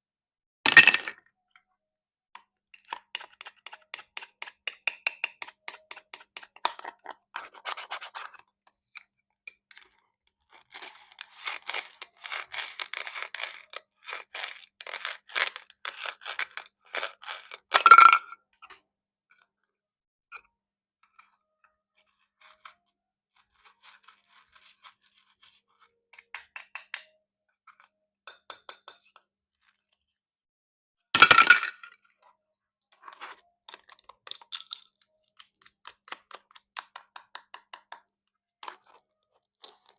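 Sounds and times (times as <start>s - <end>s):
knife cutting plastic fruit: 2.8s - 8.4s, 9.7s - 17.8s.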